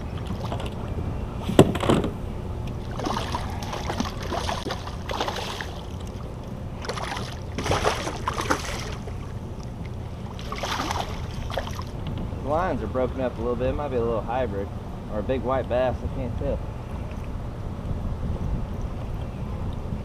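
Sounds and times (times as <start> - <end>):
water noise: 0.0 - 20.0
water splashing: 2.7 - 12.0
wind noise: 15.9 - 20.0.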